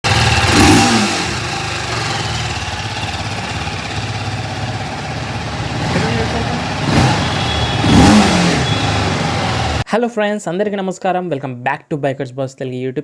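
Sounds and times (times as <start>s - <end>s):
motorcycle engine idling: 0.1s - 9.8s.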